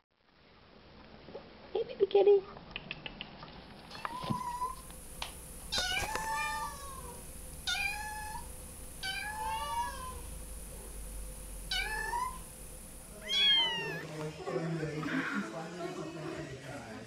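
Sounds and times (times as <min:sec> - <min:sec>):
kitten meowing: 0:03.9 - 0:04.8, 0:05.7 - 0:10.3, 0:11.7 - 0:12.4, 0:13.2 - 0:14.1.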